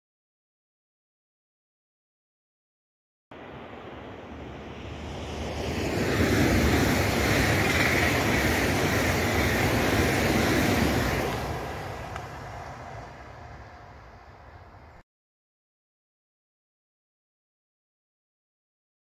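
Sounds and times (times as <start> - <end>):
train passing at speed: 3.3 - 15.0.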